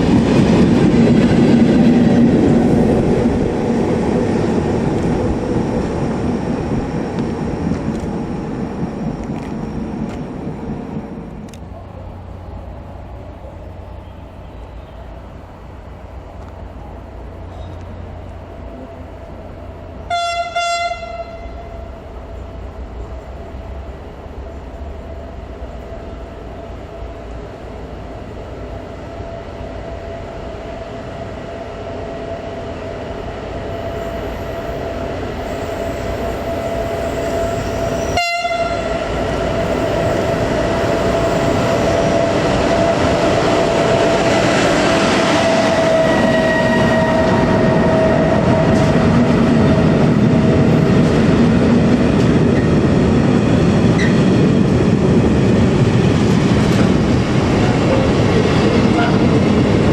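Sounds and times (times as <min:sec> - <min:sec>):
train horn toot: 0:20.0 - 0:21.9, 0:35.5 - 0:40.3, 0:45.6 - 0:50.0, 0:58.9 - 0:59.3
electric train running: 0:21.7 - 0:59.9.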